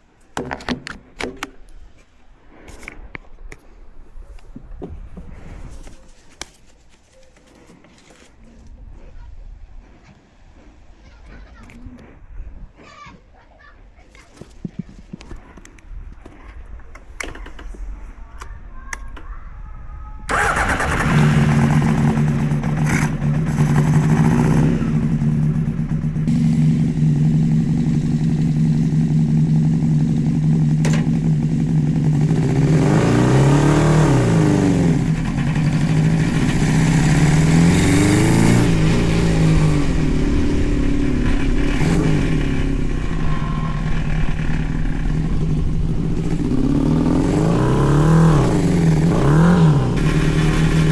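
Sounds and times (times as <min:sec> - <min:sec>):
go-kart engine running: 0:20.3 - 0:50.9.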